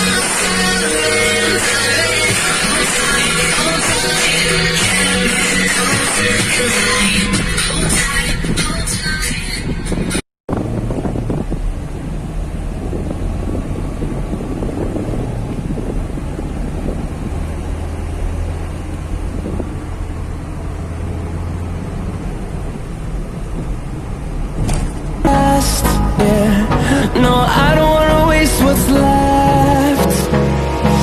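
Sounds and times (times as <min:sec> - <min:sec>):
diesel engine drone: 0:00.0 - 0:31.0
tyre and wind noise: 0:05.9 - 0:25.3.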